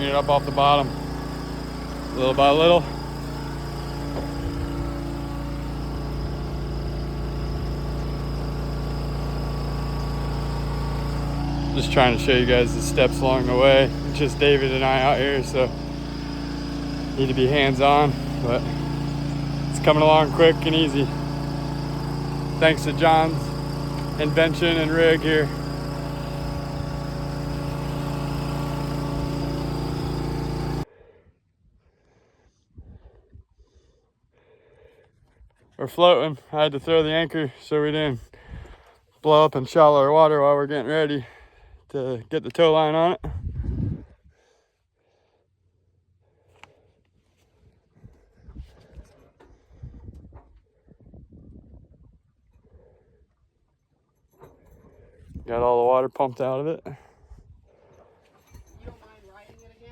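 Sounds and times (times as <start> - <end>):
engine-driven water pump running: 0.0 - 31.0, 48.0 - 50.9, 52.1 - 59.9.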